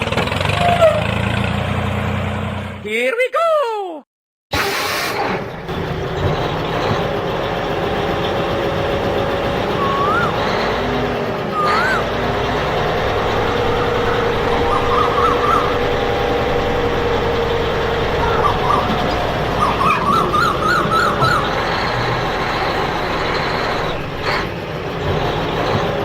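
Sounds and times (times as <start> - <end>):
small machine running: 5.9 - 26.0
rising whistle-like chirps: 9.6 - 17.3
warbling chirps: 9.6 - 24.4.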